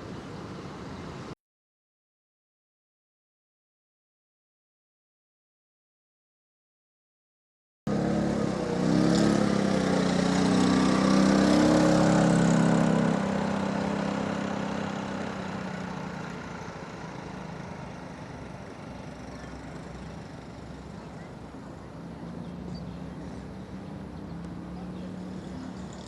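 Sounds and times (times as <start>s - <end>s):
drone propellers humming: 14.7s - 26.0s.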